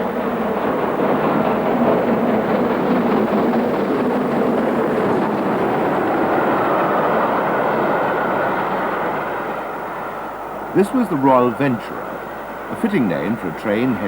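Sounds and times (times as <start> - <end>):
steam train running: 0.0 - 14.0.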